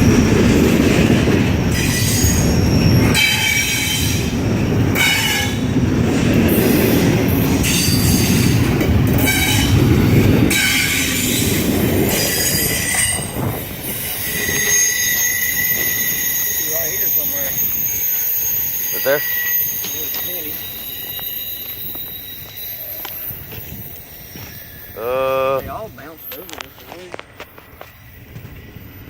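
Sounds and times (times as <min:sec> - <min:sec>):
train wheels rumbling on rails: 0:00.0 - 0:29.0
wheel squeal: 0:01.6 - 0:04.3, 0:07.6 - 0:25.2.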